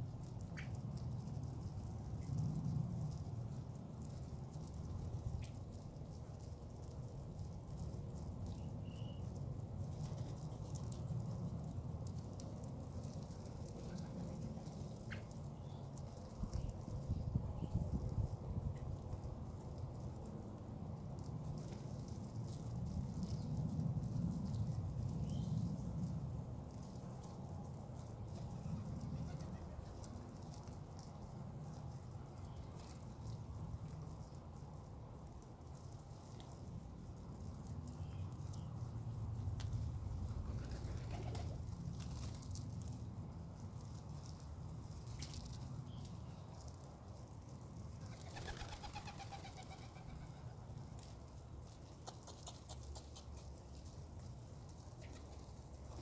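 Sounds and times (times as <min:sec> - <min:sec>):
bird chirp: 0:08.6 - 0:09.3
birds pecking: 0:43.5 - 0:56.0.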